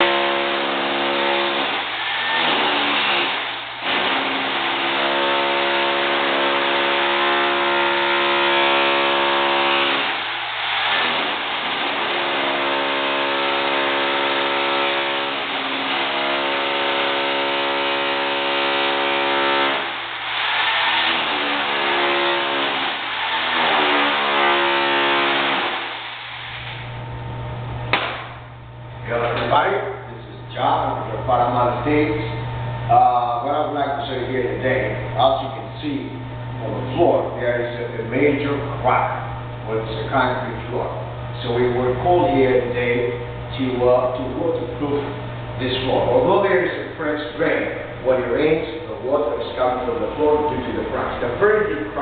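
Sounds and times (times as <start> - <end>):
hammer drill chipping concrete: 0.0 - 26.8.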